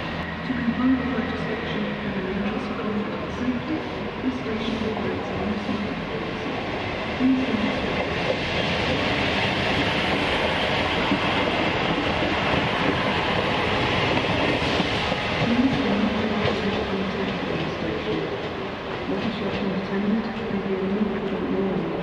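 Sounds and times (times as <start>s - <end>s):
diesel train engine: 0.0s - 22.0s
steel wheels running on rails: 0.0s - 22.0s.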